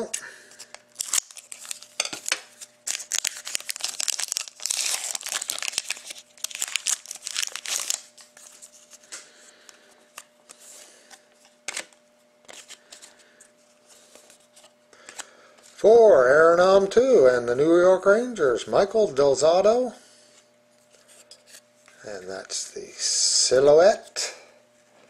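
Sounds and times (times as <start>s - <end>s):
wrapper tearing and crinkling: 0.6s - 9.0s
cards rustling and clicking: 0.6s - 13.2s.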